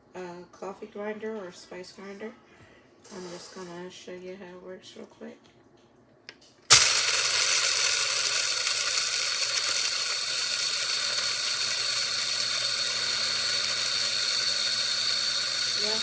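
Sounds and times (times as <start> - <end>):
coffee grinder whining: 6.7 - 16.0.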